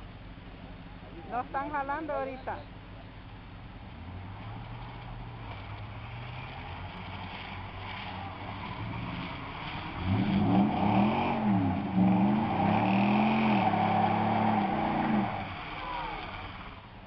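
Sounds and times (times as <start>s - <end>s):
truck engine revving: 3.6s - 17.0s.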